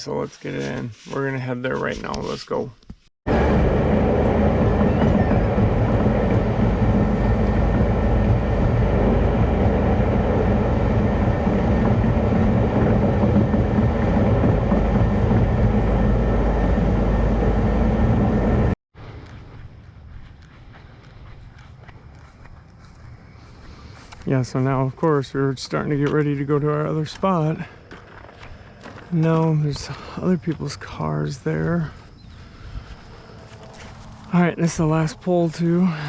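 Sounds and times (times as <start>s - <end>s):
vehicle driving with road noise: 3.3s - 24.5s, 28.0s - 36.0s.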